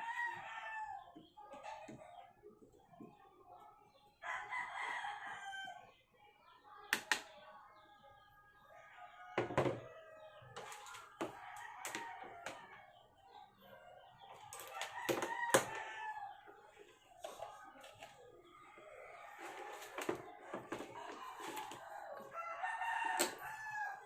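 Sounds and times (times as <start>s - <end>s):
rooster crowing: 20.8s - 24.0s.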